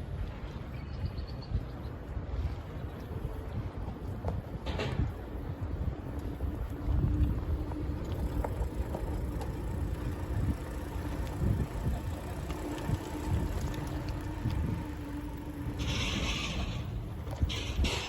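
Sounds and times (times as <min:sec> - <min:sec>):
wind buffeting microphone: 0:00.0 - 0:18.0
bicycle tyre rumble: 0:02.0 - 0:18.0.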